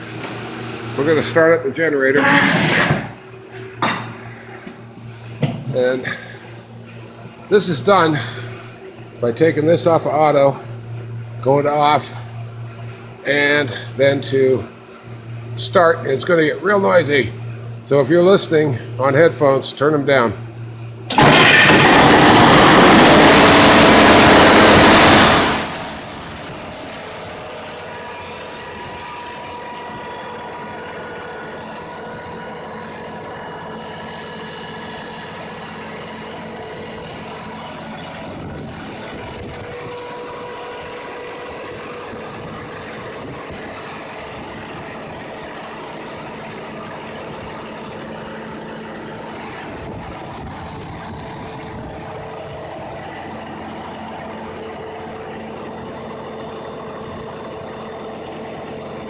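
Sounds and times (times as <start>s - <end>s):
generator engine running: 0.0s - 59.0s.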